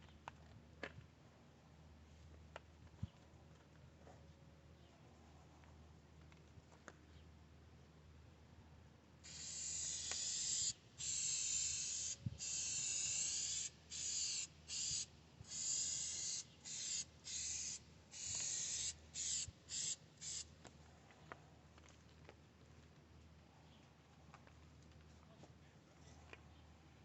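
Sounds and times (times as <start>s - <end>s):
aerosol spray can hissing: 9.3s - 20.4s.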